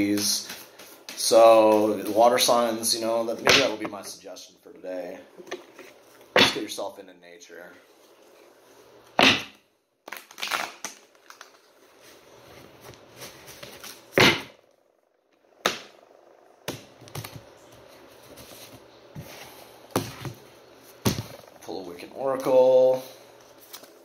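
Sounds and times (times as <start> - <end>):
cards shuffling and rustling: 10.1 - 12.2, 23.4 - 24.0.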